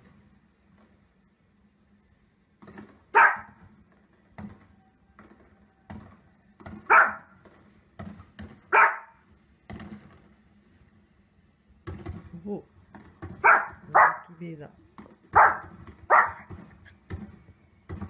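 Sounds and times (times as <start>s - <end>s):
small dog barking: 3.1s - 3.6s, 6.9s - 7.3s, 8.7s - 9.2s, 13.4s - 14.4s, 15.3s - 16.5s.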